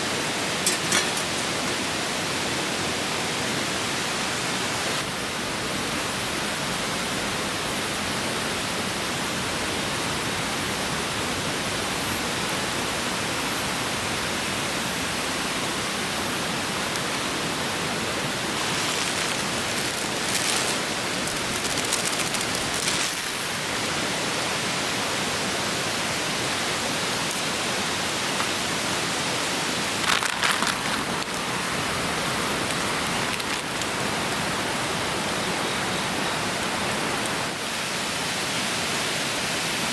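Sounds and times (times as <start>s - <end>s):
stream rushing: 0.0s - 8.6s, 13.8s - 39.9s
crackling clicks: 18.6s - 23.6s, 30.0s - 31.4s.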